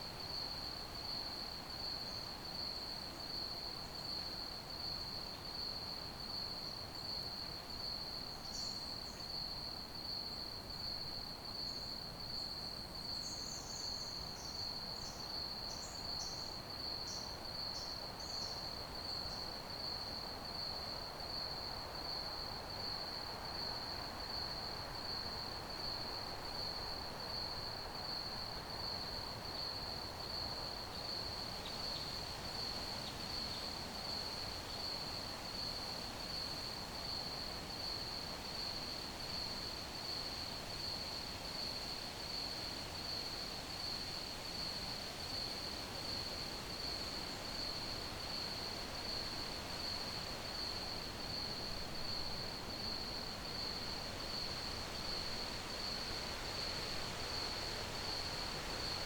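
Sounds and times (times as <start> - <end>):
low background hiss: 0.0 - 59.0
crickets trilling: 46.2 - 59.0.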